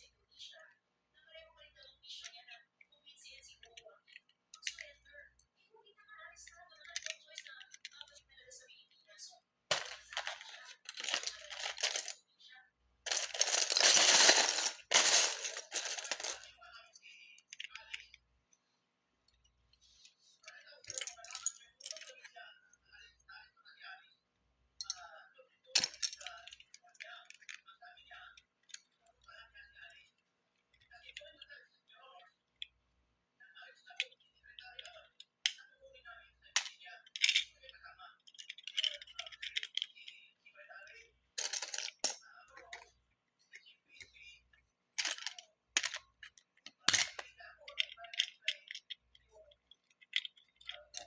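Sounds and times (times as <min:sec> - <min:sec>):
plastic bricks clicking and clattering: 0:09.7 - 0:12.2, 0:13.1 - 0:16.6, 0:38.3 - 0:40.0, 0:45.0 - 0:51.0
plastic pieces clattering: 0:09.7 - 0:12.2, 0:13.1 - 0:16.5.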